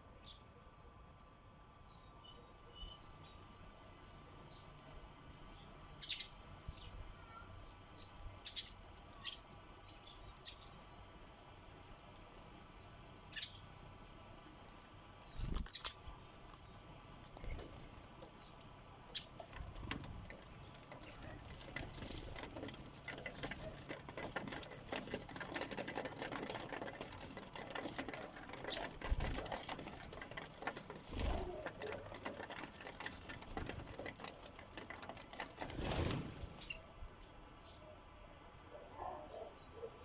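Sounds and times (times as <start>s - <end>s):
beaks tapping on bird feeder: 19.2s - 35.8s
rustling bursts: 19.3s - 37.0s.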